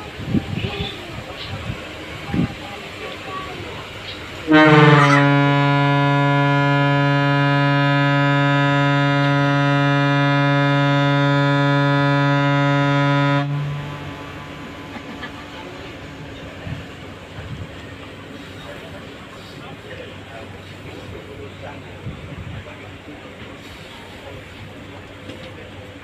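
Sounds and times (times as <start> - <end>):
harbour background noise: 0.0 - 26.0
ship's horn blast: 4.4 - 18.4.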